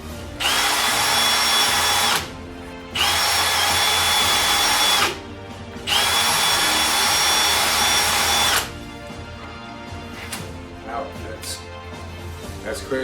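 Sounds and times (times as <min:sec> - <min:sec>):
harsh drilling cutting noise: 0:00.0 - 0:08.8
power drill whining: 0:00.0 - 0:08.8.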